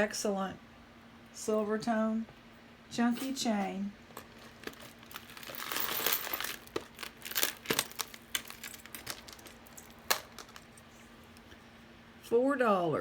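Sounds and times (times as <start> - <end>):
jewelry chain clicking: 4.2 - 10.8
plastic bag crinkling: 4.2 - 10.8.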